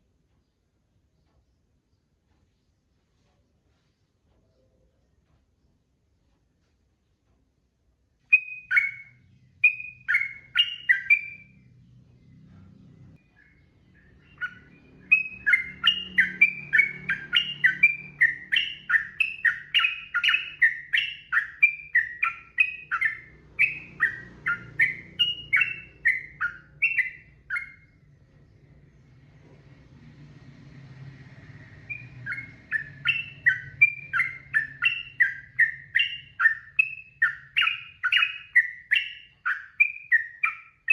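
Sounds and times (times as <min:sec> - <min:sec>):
faint low hum: 0:00.0 - 0:40.9
bird singing: 0:08.2 - 0:40.9.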